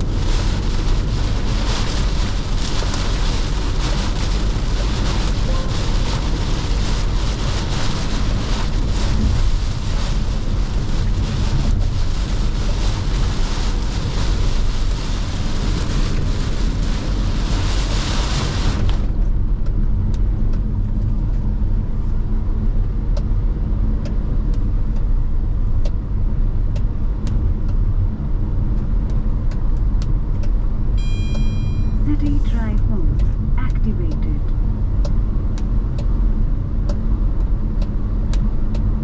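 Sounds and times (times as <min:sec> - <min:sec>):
rain hissing on car: 0:00.0 - 0:22.4
road rumble: 0:00.0 - 0:39.0.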